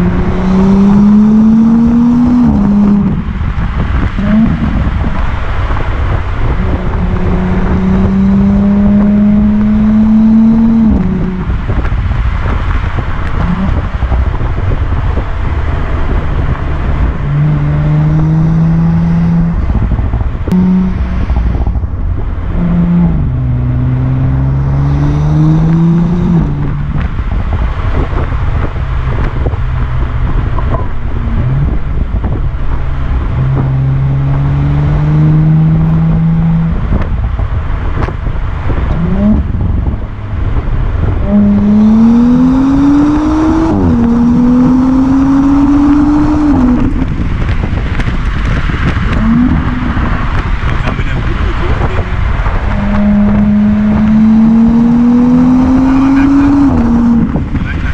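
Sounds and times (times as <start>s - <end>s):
car engine accelerating hard: 0.0s - 57.9s
road and wind rumble: 0.0s - 57.9s.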